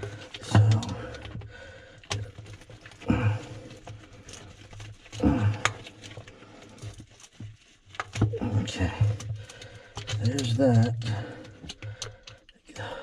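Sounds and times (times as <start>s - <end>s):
low grunts: 3.0s - 3.6s, 5.2s - 5.8s.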